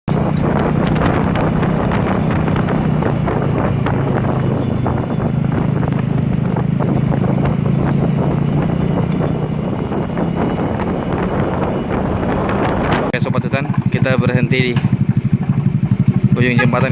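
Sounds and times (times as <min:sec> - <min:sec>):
vehicle engine running: 0:00.1 - 0:16.9
rattles and knocks: 0:12.2 - 0:16.4.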